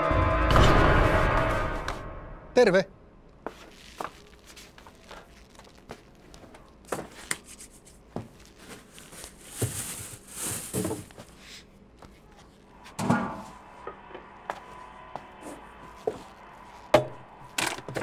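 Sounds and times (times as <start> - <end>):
rustling: 3.4 - 13.0.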